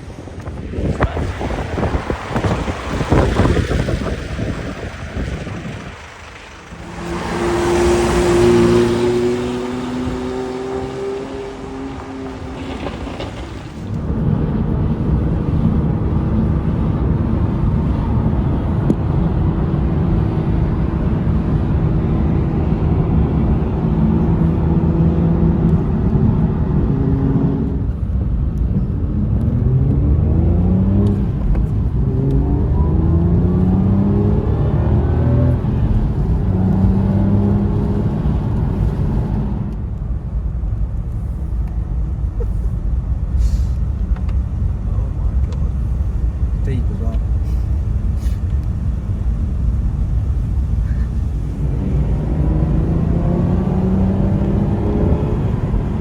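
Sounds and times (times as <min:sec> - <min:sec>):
car engine revving through gears: 0:00.7 - 0:28.0, 0:29.0 - 0:39.8, 0:51.2 - 0:56.0.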